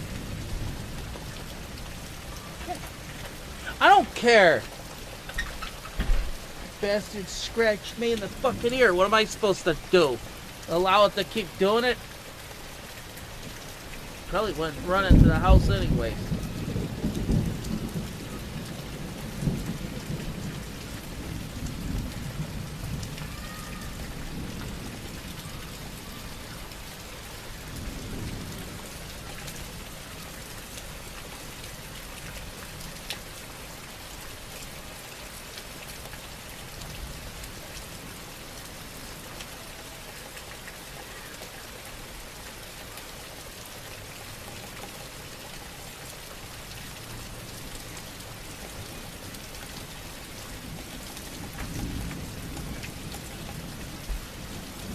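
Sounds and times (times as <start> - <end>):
thunder rumbling: 0.0 - 4.9, 14.2 - 26.0
steady rain: 0.0 - 54.9.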